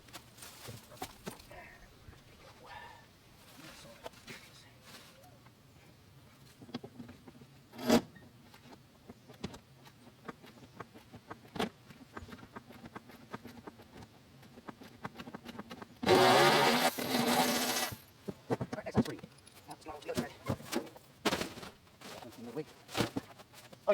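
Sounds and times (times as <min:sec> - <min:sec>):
power tool buzzing: 0:16.0 - 0:18.1.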